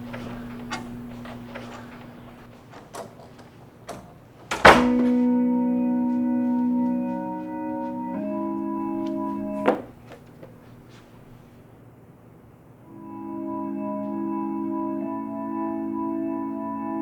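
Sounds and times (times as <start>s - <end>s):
sustained organ chord: 0.0s - 3.0s, 4.5s - 11.6s, 12.6s - 17.0s
faint low hum: 0.0s - 17.0s
loud thump: 4.5s - 5.2s.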